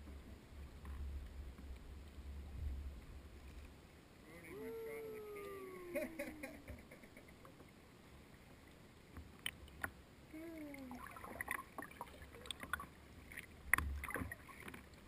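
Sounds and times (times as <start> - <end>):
paddle splashing water: 6.5 - 15.0.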